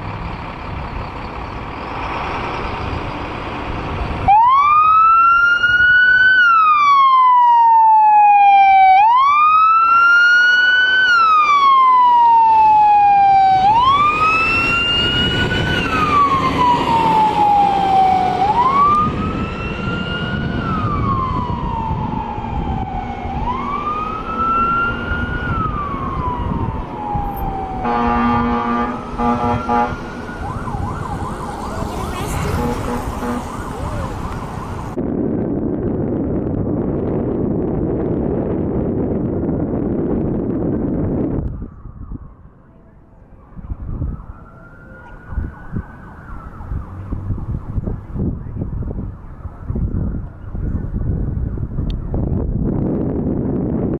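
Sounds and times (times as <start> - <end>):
fire truck siren wailing: 0.0 - 35.0, 40.6 - 52.5
faint second siren: 4.2 - 35.0, 41.2 - 52.4
horn short blasts: 27.8 - 30.1, 32.4 - 33.7.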